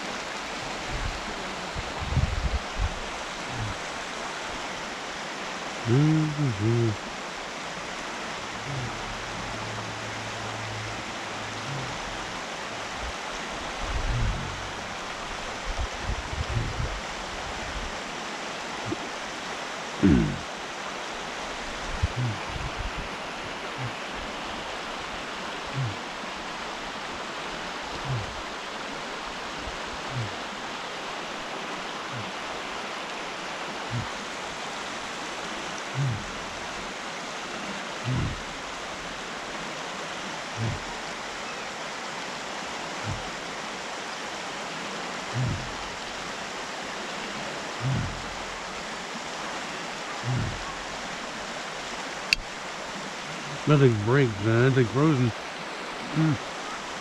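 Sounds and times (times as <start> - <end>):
steady rushing noise: 0.0 - 4.6, 8.5 - 17.9, 43.0 - 43.4.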